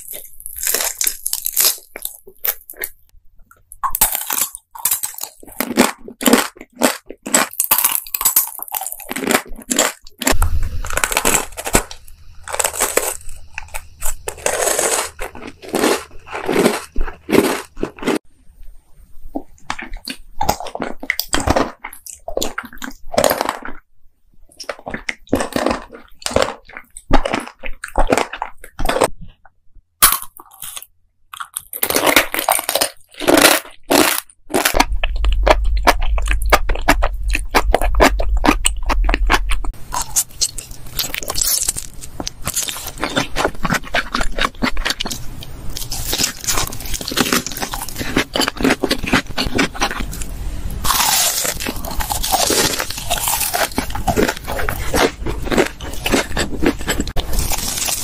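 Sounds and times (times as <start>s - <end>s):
crunching bites and chewing: 0.0s - 18.2s, 19.3s - 23.9s, 24.5s - 29.4s, 30.0s - 58.0s.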